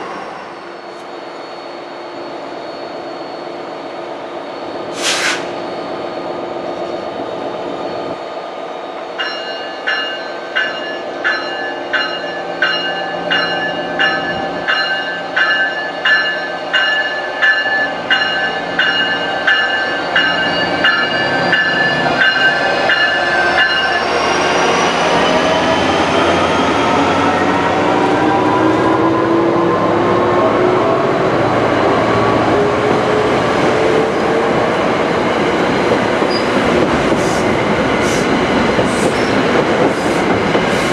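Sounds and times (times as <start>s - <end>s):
diesel locomotive engine: 0.0s - 40.9s
train bell ringing: 9.2s - 25.5s.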